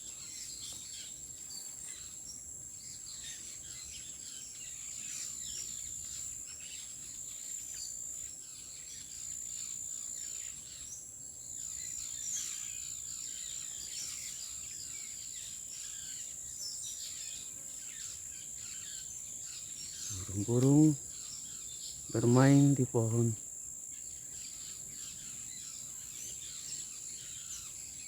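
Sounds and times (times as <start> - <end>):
small birds chirping: 10.5 - 23.4.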